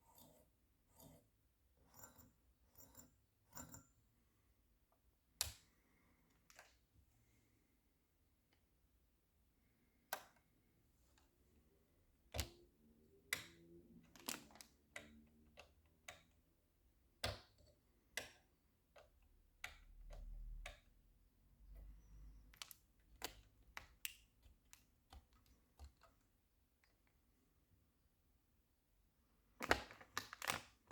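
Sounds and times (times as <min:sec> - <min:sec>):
clicks and knocks of handling: 0:22.5 - 0:27.2.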